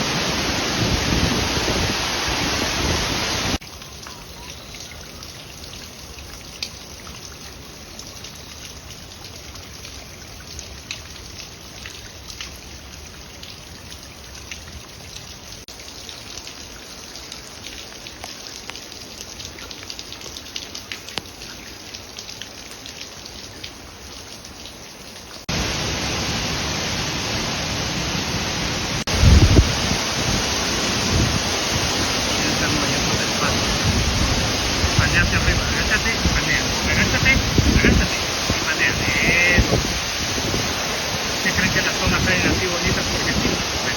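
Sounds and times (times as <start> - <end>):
rush of falling water: 0.0 - 43.9
water dripping and trickling: 3.6 - 25.7, 29.0 - 43.9.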